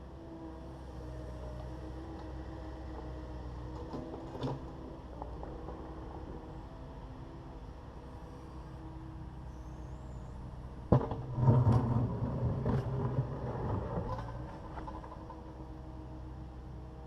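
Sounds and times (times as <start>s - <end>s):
excavator diesel engine running: 11.7s - 17.0s.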